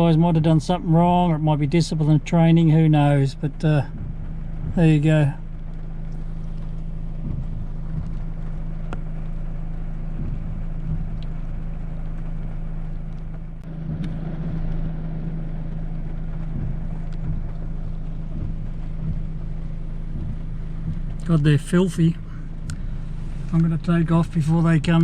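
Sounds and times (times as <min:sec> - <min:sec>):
car idling low hum: 0:00.0 - 0:25.0
soft hiss: 0:00.0 - 0:25.0
faint ticks: 0:05.4 - 0:15.0, 0:15.6 - 0:21.4.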